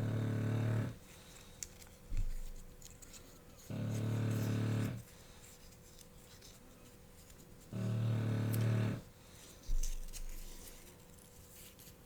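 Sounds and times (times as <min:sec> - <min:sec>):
puppy snoring: 0:00.0 - 0:01.0, 0:03.7 - 0:05.0, 0:07.7 - 0:09.1.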